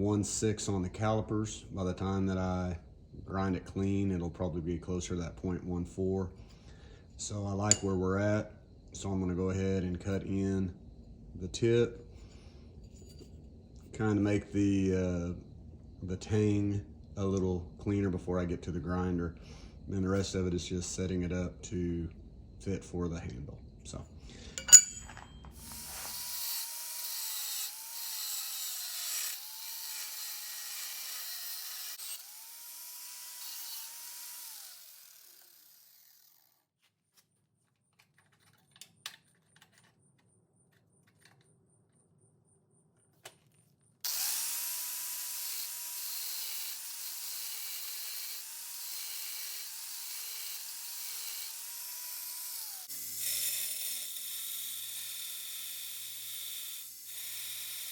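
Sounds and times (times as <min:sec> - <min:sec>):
power tool cutting steel: 0:25.6 - 0:36.6, 0:44.1 - 0:57.9.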